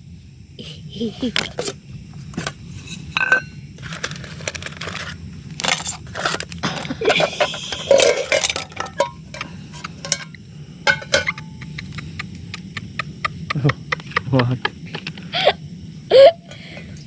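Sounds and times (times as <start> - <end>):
pots and pans clinking together: 2.4 - 11.8.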